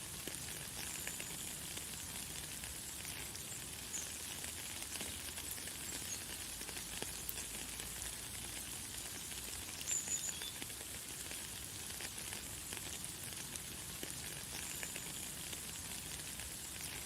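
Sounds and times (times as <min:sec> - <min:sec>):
light rain falling: 0:00.0 - 0:17.0
bird chirp: 0:09.9 - 0:10.6.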